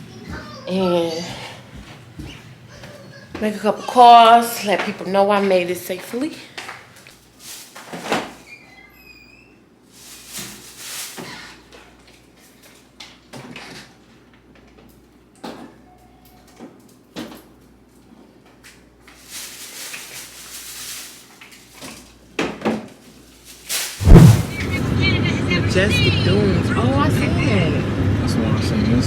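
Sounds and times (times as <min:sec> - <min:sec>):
rustling: 0:19.2 - 0:21.4, 0:23.5 - 0:24.9.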